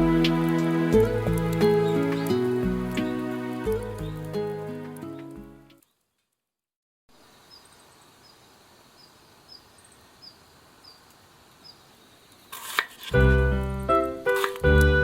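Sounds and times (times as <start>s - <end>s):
outdoor hiss: 7.1s - 14.9s.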